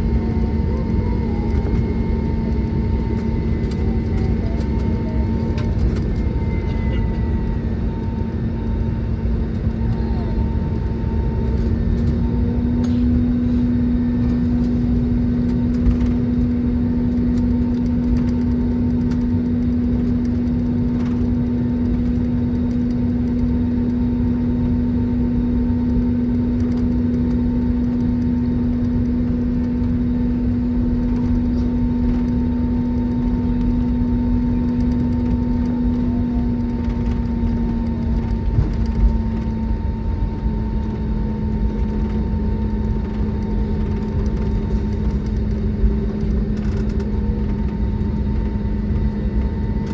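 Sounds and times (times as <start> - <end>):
aircraft engine hum: 0.0 - 49.9
low rumble: 0.0 - 49.9.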